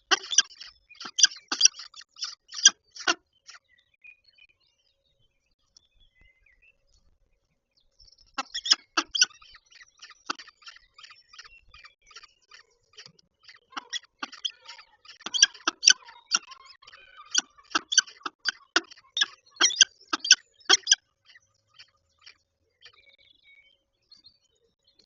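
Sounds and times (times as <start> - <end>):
falcon chips and ticks: 0.0 - 3.6, 8.4 - 22.4.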